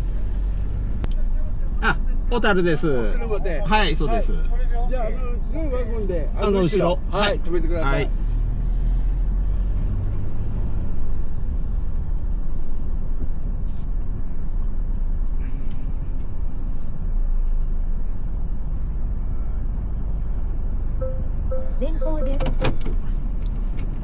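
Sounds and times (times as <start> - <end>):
car engine rumble inside cabin: 0.0 - 24.0.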